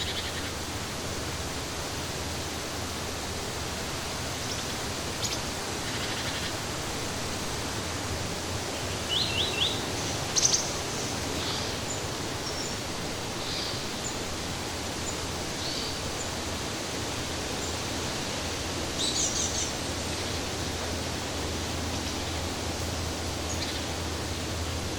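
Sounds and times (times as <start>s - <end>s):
small birds chirping: 8.7s - 14.3s, 18.9s - 20.8s, 22.0s - 24.4s.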